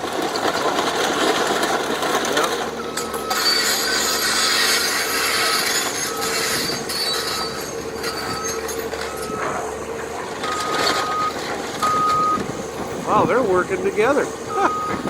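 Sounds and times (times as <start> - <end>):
machinery engine: 0.0 - 15.0
high squealing noise: 3.3 - 8.7
back-up alarm beeping: 10.4 - 12.4, 14.5 - 15.0.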